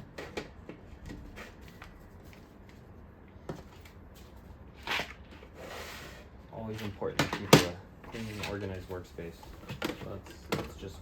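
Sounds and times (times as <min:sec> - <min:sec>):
rustling clatter of tools: 0:06.6 - 0:11.0
tools clicking and tapping in tray: 0:06.8 - 0:08.7, 0:09.4 - 0:11.0.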